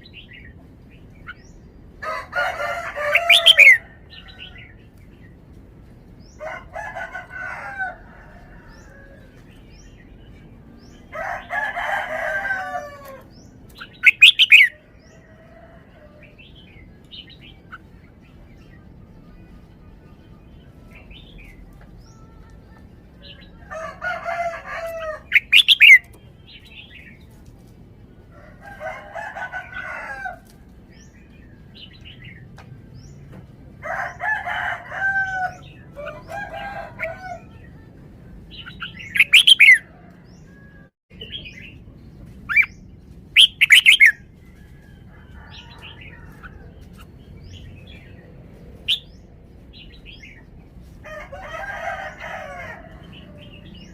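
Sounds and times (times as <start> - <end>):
bulbul singing warbled phrases: 1.3 - 4.8, 13.0 - 15.2, 16.2 - 27.4, 35.4 - 40.5, 42.5 - 44.2.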